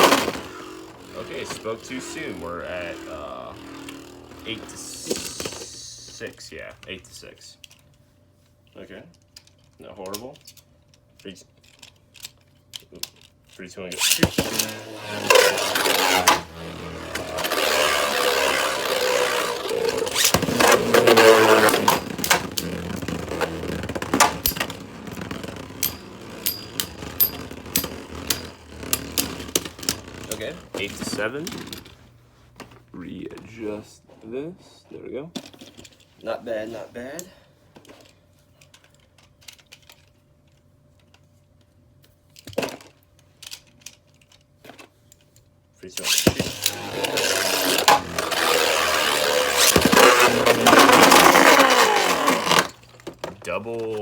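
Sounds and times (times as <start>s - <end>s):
spinning tops clacking: 0.0s - 6.2s, 14.0s - 31.1s, 46.0s - 52.9s
spinning tops whirring: 0.0s - 6.3s, 13.9s - 31.9s, 46.0s - 53.2s
plastic clatter: 14.0s - 31.9s, 46.0s - 54.0s.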